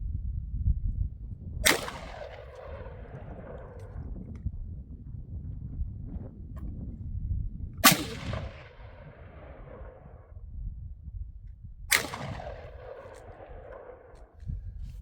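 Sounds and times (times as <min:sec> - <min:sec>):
gunshot with echo: 0:01.6 - 0:03.8, 0:07.8 - 0:10.1, 0:11.9 - 0:14.3.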